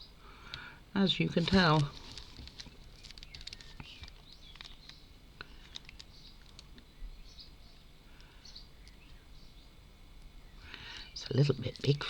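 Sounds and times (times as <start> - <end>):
paper stickers rustling: 1.3 - 6.7.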